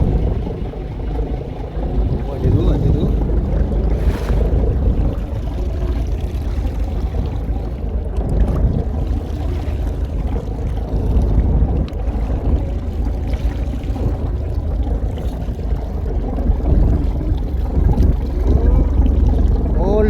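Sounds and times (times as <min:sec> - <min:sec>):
boat engine low rumble: 0:00.0 - 0:20.0.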